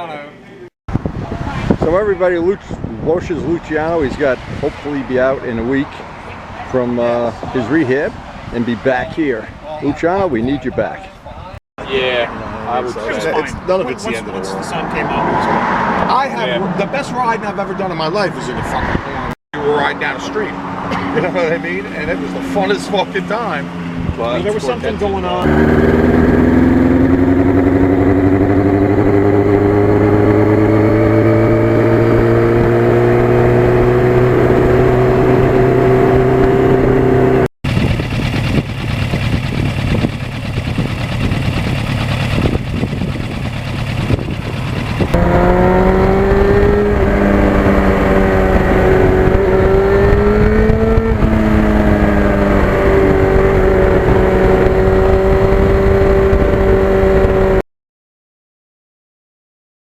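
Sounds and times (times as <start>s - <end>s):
motorcycle engine pulling under load: 25.4s - 57.6s.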